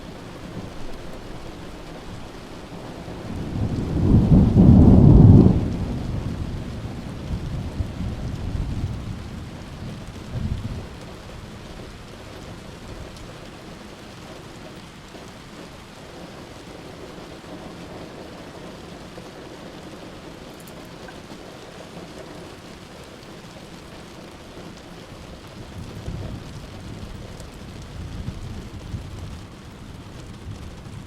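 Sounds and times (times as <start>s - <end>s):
heavy rain falling: 0.0s - 31.0s
rolling thunder: 2.1s - 13.2s, 25.4s - 31.0s.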